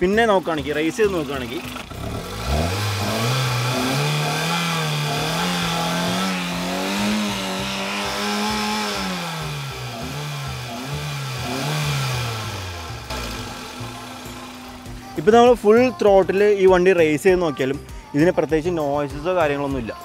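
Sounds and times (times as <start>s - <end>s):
car engine revving: 0.5s - 16.0s.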